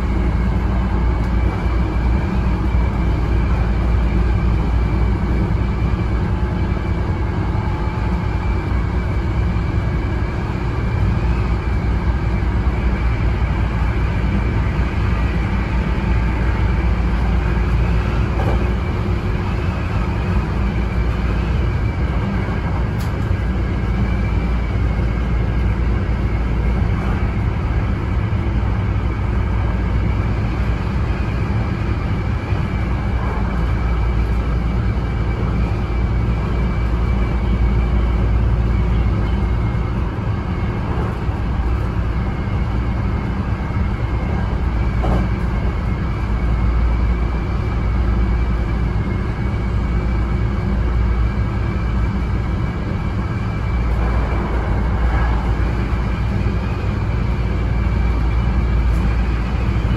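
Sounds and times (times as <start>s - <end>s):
rumble of wheels on rail: 0.0s - 59.9s.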